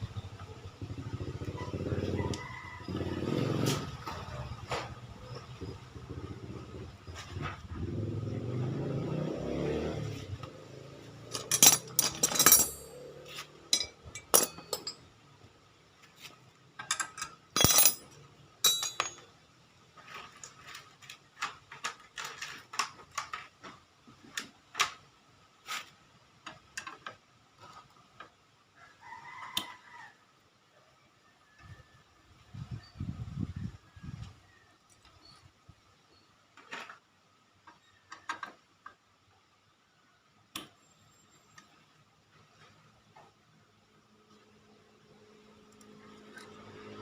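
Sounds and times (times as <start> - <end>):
two-stroke motorcycle engine running: 0.0 - 5.0
sharp metallic clicks and clinks: 11.2 - 15.1, 16.8 - 19.3.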